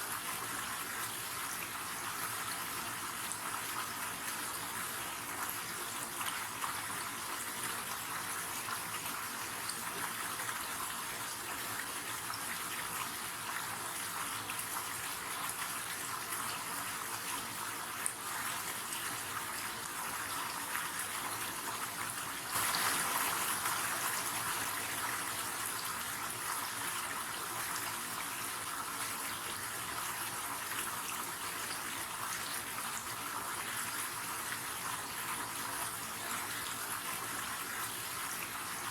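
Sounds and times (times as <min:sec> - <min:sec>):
river water flowing and splashing: 0:22.4 - 0:26.4.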